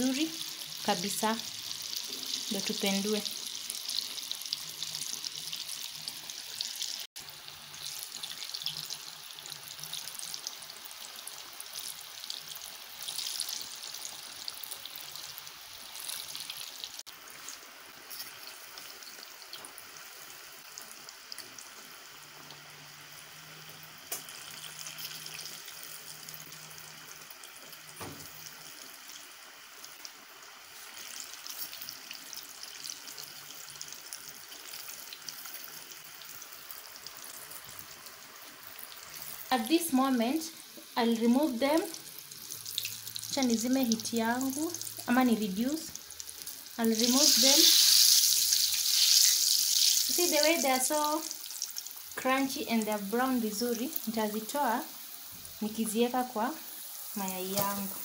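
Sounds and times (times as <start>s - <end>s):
deep-frying sizzle: 0.0s - 58.0s.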